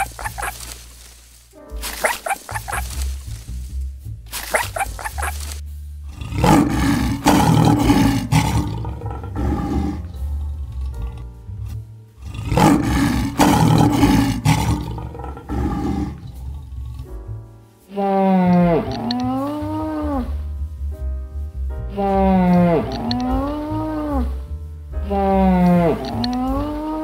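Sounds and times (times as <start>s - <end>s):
background music: 0.0s - 27.0s
large animal roaring: 6.0s - 11.3s, 12.2s - 17.1s, 18.1s - 20.4s, 22.1s - 24.3s, 25.1s - 27.0s.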